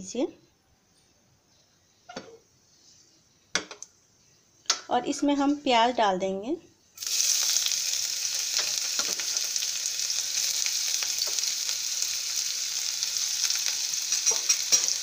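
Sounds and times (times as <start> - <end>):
onion sizzling in hot oil: 7.0 - 15.0.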